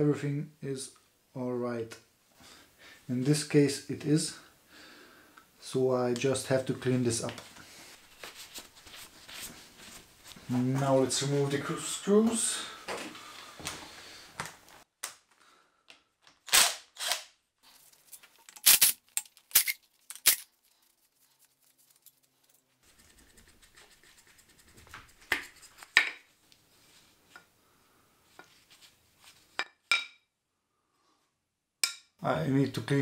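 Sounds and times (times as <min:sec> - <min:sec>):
faint handling and rubbing: 0:06.7 - 0:14.0, 0:19.7 - 0:29.6.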